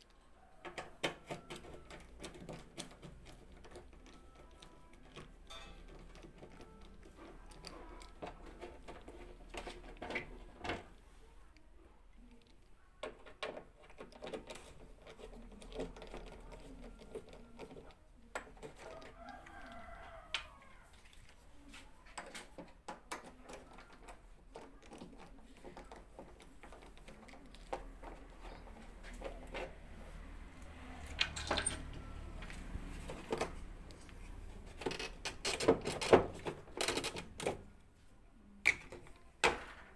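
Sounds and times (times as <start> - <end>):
handling clicks and knocks: 12.4 - 37.9, 38.6 - 39.9
rooster crowing: 18.8 - 21.0.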